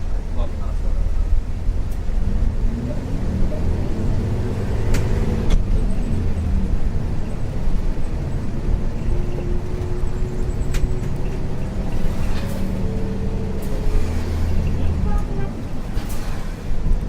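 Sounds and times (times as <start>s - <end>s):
bus diesel engine rumble: 0.0s - 17.0s
rattling clicks from bus body: 1.8s - 2.2s, 4.6s - 17.0s.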